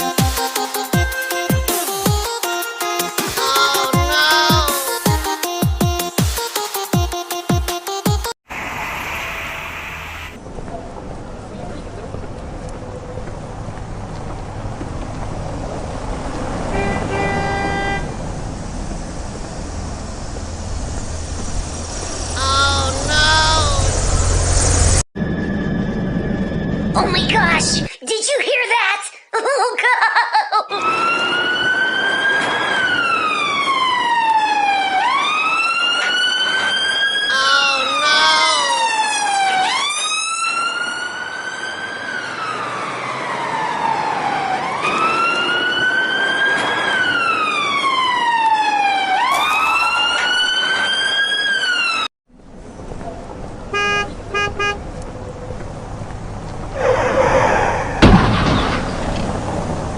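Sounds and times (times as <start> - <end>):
siren wailing: 2.7 - 5.3, 22.0 - 27.0, 30.7 - 52.1
loud noisy burst: 8.5 - 10.4.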